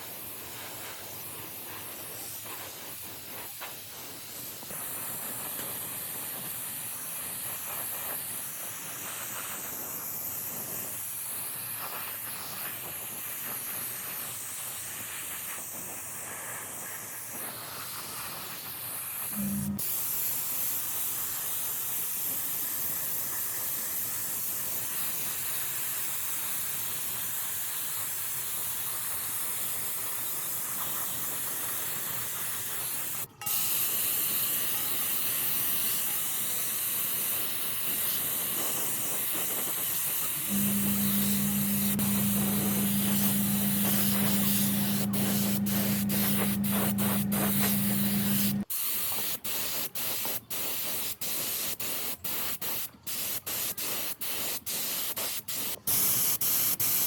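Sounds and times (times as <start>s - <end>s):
low steady hum: 19.4s - 19.8s, 40.4s - 48.6s
steady hissing rush: 40.4s - 48.6s.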